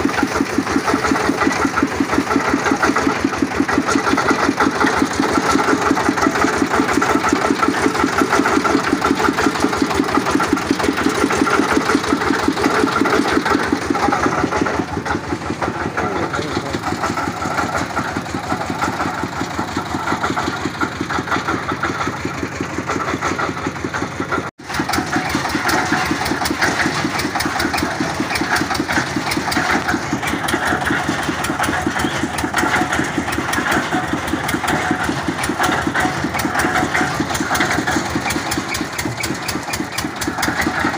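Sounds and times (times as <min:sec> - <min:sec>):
boring machine engine running: 0:00.0 - 0:40.9.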